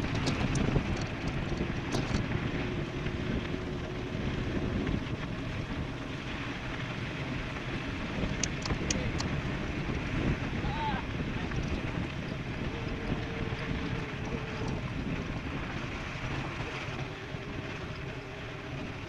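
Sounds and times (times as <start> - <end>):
wind rushing over microphone: 0.0 - 19.0
faint steady hum: 8.3 - 19.0.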